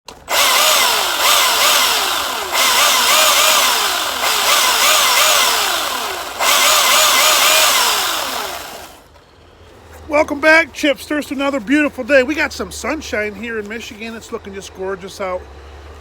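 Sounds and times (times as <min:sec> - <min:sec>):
motor whine rising and falling: 0:00.2 - 0:09.0.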